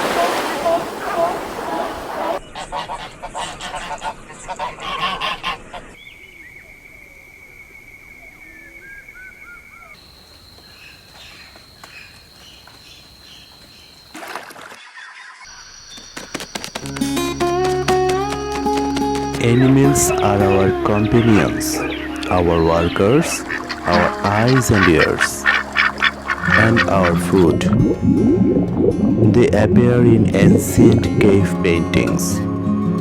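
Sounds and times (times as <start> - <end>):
flock of birds calling: 0.0 - 6.2, 15.0 - 27.8
steady high tone: 17.4 - 32.0.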